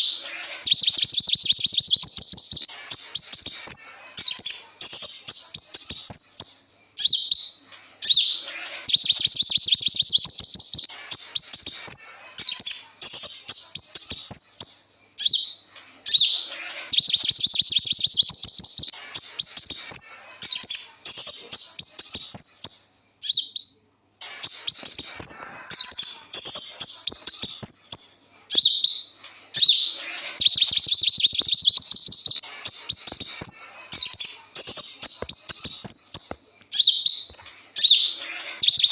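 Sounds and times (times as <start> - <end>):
bird twittering song: 0.0 - 38.9.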